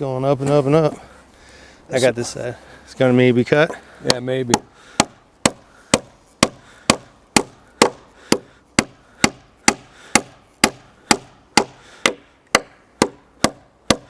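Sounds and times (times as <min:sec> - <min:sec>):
hammer driving nail into wood: 0:04.1 - 0:14.0.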